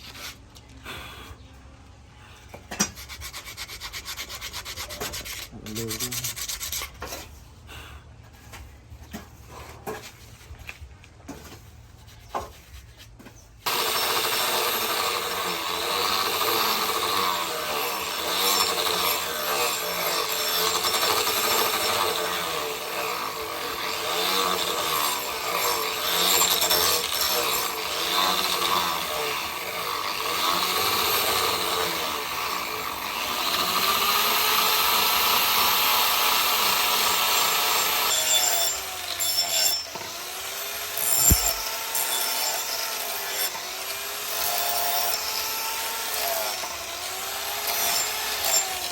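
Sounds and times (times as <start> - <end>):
power tool grinding: 13.6 - 48.9.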